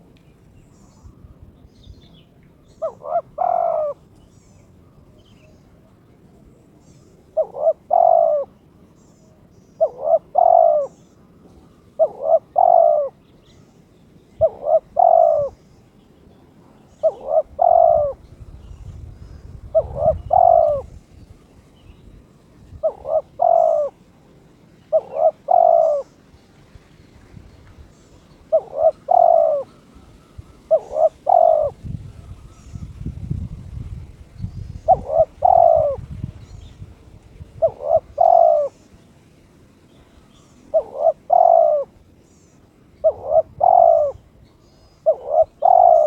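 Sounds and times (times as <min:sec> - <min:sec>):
dove cooing: 0:02.6 - 0:04.1, 0:07.0 - 0:08.6, 0:09.3 - 0:13.3, 0:14.4 - 0:15.7, 0:16.6 - 0:21.2, 0:22.5 - 0:26.4, 0:27.8 - 0:33.5, 0:34.6 - 0:39.1, 0:40.0 - 0:46.0
small birds chirping: 0:24.8 - 0:39.1, 0:39.8 - 0:46.0.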